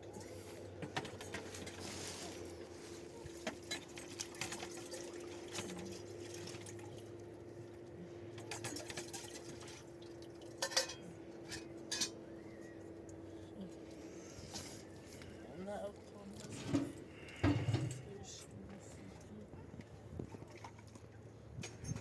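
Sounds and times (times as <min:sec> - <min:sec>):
dishes and utensils clinking: 0:08.4 - 0:09.6, 0:10.5 - 0:12.2.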